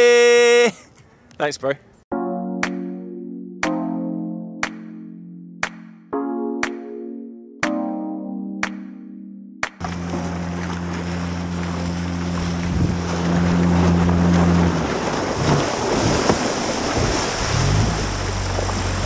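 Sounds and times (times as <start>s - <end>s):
wind: 0.0s - 2.1s, 9.8s - 19.0s
water noise: 9.6s - 19.0s
speedboat motor revving: 9.8s - 19.0s.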